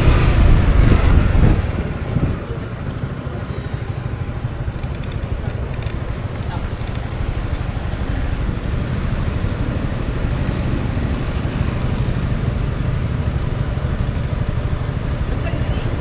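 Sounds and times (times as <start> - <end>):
road noise: 0.0 - 16.0
scooter engine: 0.0 - 16.0
wind buffeting microphone: 0.0 - 16.0.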